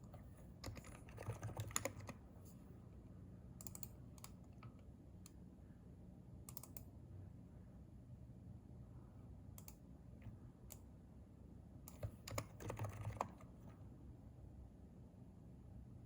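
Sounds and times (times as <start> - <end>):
typing on a keyboard: 0.0 - 2.2, 3.6 - 4.7, 11.9 - 13.6.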